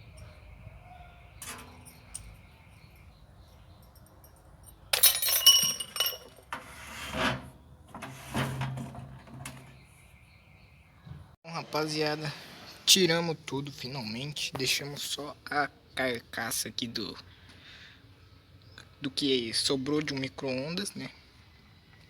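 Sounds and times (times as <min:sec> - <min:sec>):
metal parts clattering and clinking: 0:03.8 - 0:06.5
dull knocks and scrapes: 0:06.5 - 0:09.9.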